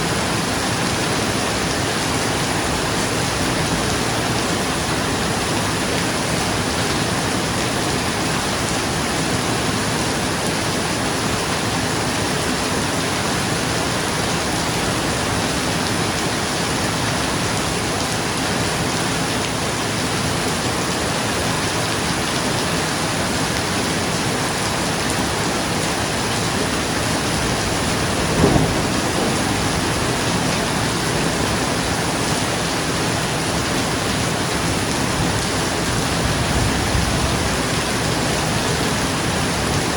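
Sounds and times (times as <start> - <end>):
rain on a roof: 0.0 - 39.9
thunder rumble: 26.5 - 33.4.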